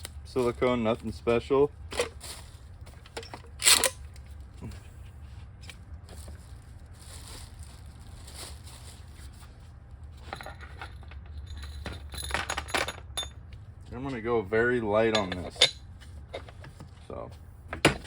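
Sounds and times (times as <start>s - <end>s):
steady low hum: 0.0s - 18.0s
rustling scrape: 1.9s - 3.0s, 3.6s - 11.0s
handling rustles and clicks: 1.9s - 14.0s.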